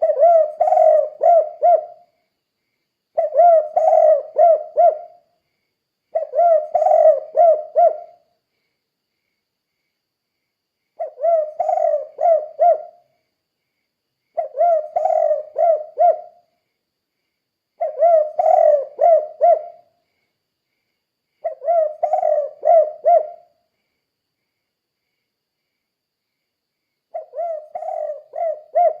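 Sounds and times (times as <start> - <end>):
dove cooing: 0.0 - 2.1, 3.2 - 5.2, 6.1 - 8.2, 11.0 - 13.0, 14.4 - 16.4, 17.8 - 19.8, 21.4 - 23.5, 27.1 - 29.0.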